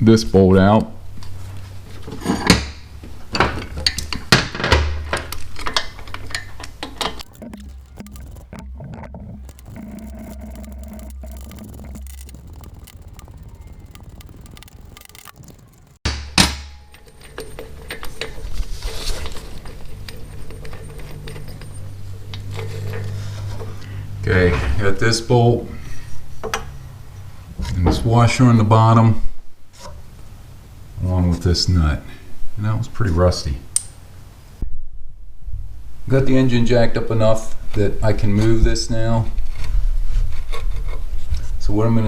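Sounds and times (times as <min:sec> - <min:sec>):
low hum: 0:07.2 - 0:16.1.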